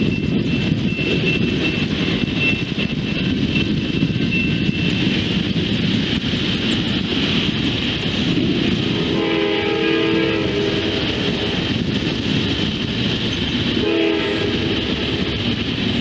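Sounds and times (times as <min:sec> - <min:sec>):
train rumble: 0:00.0 - 0:16.0
train horn blasts: 0:09.0 - 0:11.6, 0:13.8 - 0:14.9.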